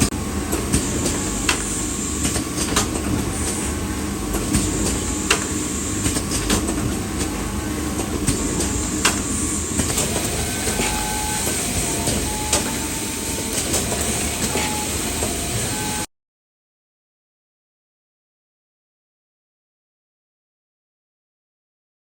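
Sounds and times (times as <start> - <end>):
factory machinery clattering: 0.0 - 16.1
short pitched beeps: 10.8 - 13.2.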